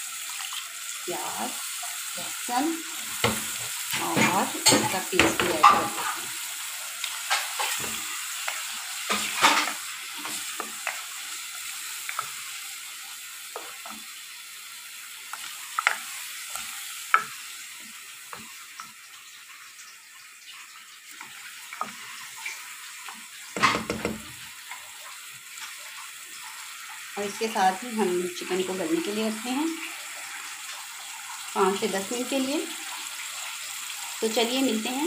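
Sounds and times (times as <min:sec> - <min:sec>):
food sizzling in a metal pan: 0:00.0 - 0:35.0
spoon scraping and knocking pan: 0:03.2 - 0:06.5, 0:07.2 - 0:12.6, 0:15.3 - 0:19.0, 0:21.1 - 0:24.5.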